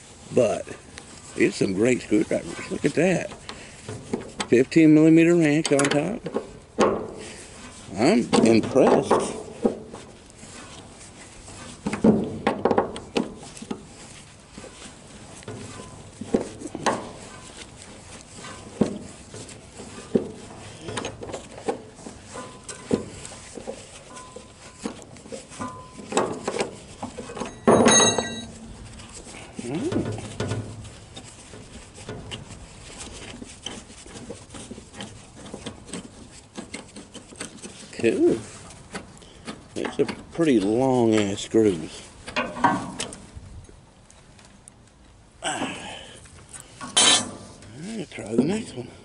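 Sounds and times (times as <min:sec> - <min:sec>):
hand tools knocking and clinking: 0:25.6 - 0:28.6
screw clicking and creaking in wood: 0:46.3 - 0:47.3.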